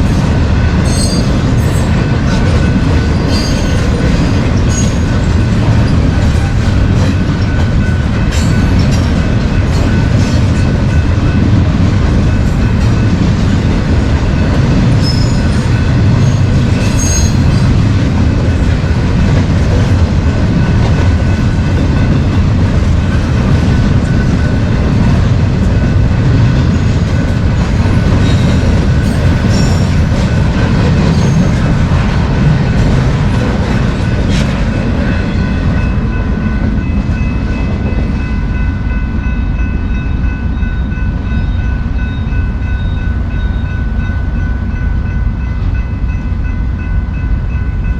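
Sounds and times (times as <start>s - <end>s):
freight train rumbling past: 0.0s - 47.9s
wheel squeal: 15.0s - 15.6s.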